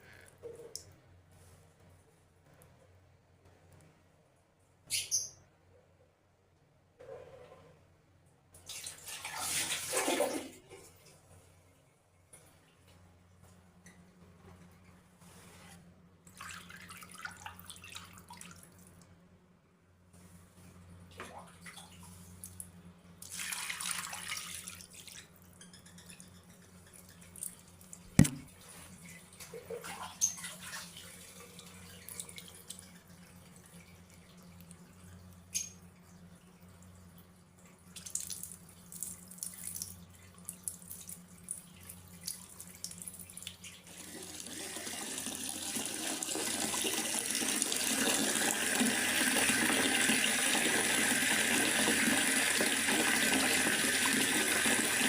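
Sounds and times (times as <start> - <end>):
water dripping and splashing: 27.3 - 43.8.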